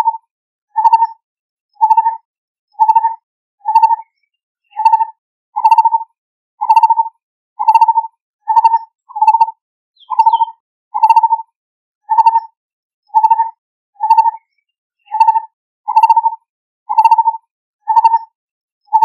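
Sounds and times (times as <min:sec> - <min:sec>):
bird calling hollow pulsed notes: 0:00.7 - 0:01.1, 0:01.8 - 0:02.1, 0:02.7 - 0:06.0, 0:06.6 - 0:07.0, 0:07.6 - 0:11.4, 0:13.1 - 0:13.4, 0:14.0 - 0:16.3, 0:16.9 - 0:18.3.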